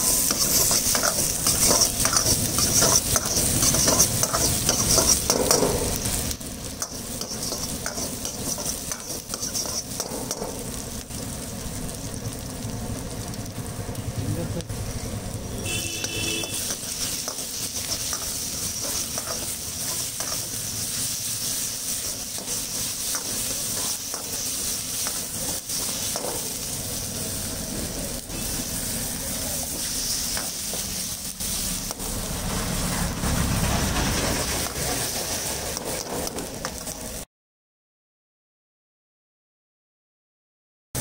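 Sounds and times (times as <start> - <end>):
metal ladle scraping a pan: 0.0 - 6.2, 6.8 - 10.4, 15.8 - 26.7
food sizzling in hot oil: 0.0 - 37.3.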